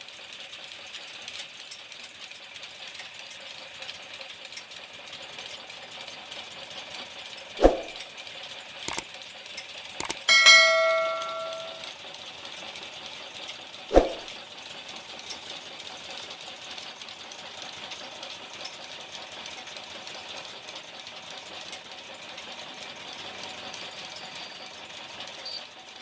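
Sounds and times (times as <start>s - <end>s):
steel struck with ringing clang: 10.2s - 11.8s.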